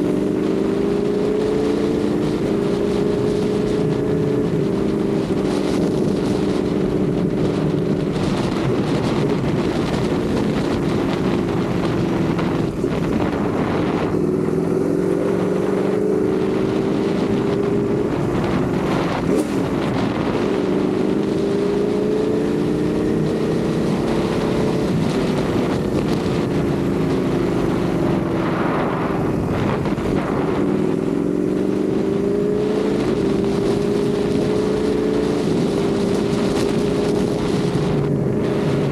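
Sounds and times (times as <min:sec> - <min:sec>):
motorcycle engine revving: 0:00.0 - 0:38.9
wind on microphone: 0:00.0 - 0:38.9.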